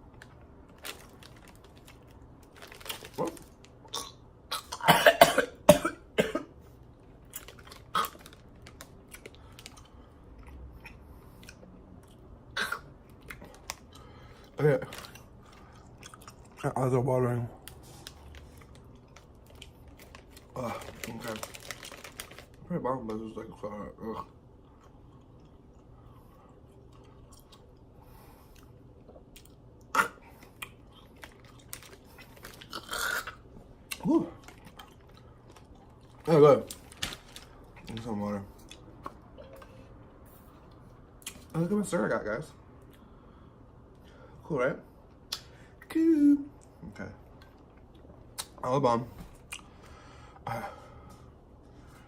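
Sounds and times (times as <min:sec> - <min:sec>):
person coughing: 0:04.7 - 0:06.6
person chewing candy: 0:07.2 - 0:16.6, 0:24.6 - 0:27.9, 0:28.5 - 0:37.5
quiet chewing with clicks: 0:24.6 - 0:32.8.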